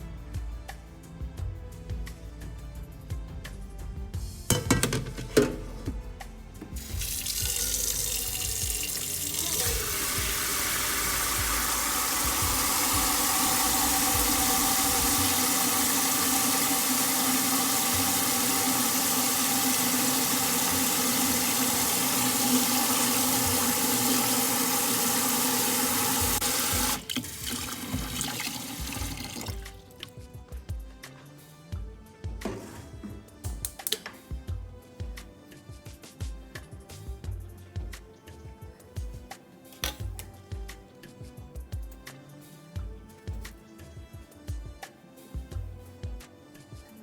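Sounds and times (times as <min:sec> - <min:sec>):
tap running into sink: 0:06.6 - 0:30.1.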